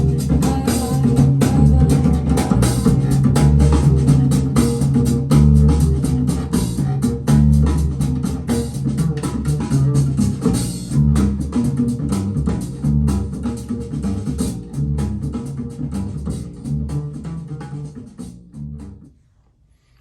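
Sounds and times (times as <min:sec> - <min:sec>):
bass line: 0:00.0 - 0:19.1
steady drum beat: 0:00.0 - 0:19.1.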